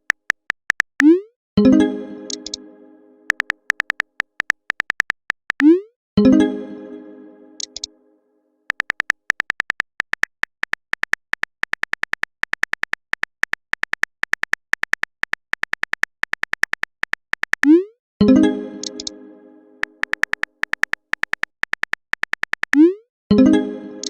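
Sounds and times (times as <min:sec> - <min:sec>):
phone keyboard typing clicks: 0:00.0 - 0:01.2, 0:02.3 - 0:02.6, 0:03.3 - 0:05.8, 0:07.6 - 0:07.9, 0:08.7 - 0:17.8, 0:18.8 - 0:19.1, 0:19.8 - 0:22.8.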